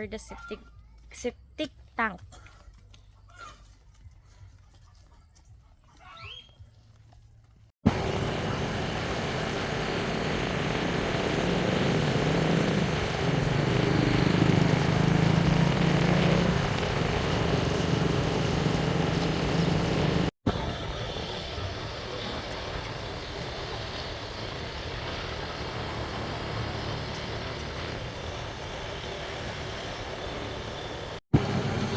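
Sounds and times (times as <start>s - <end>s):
small motorcycle engine running: 7.9s - 31.9s.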